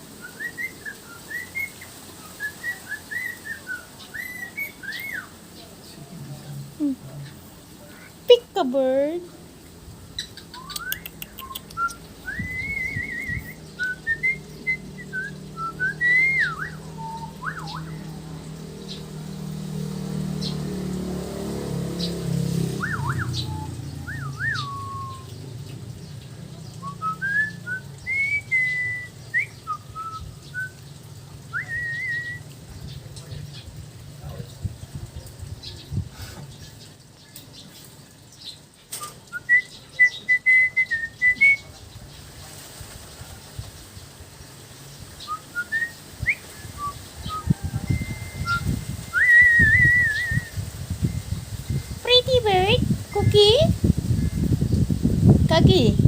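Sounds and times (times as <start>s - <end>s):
parrot whistling: 0.2s - 5.3s, 10.3s - 18.1s, 22.8s - 25.3s, 26.8s - 30.8s, 45.3s - 50.6s.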